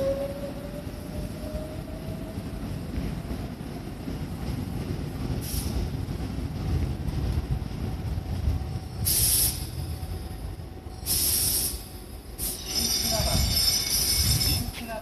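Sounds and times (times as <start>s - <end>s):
electric train rolling to a stop: 0.0s - 15.0s
brake air hiss: 9.0s - 9.7s, 11.0s - 12.6s.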